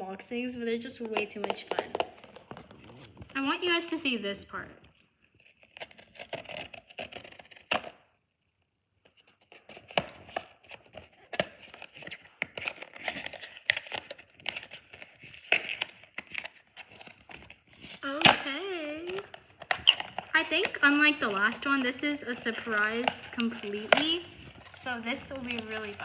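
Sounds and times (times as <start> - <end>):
packaging crinkling and tearing: 4.8 - 8.0, 9.1 - 26.0.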